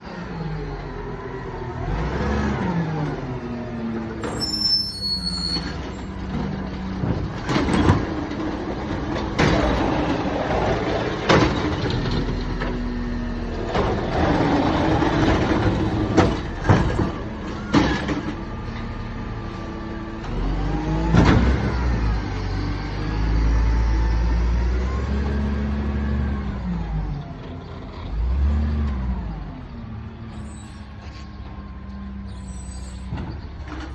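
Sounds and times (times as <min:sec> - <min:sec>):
garbage truck diesel engine revving: 0:00.0 - 0:33.9
high squeal: 0:04.1 - 0:06.3, 0:30.2 - 0:33.8.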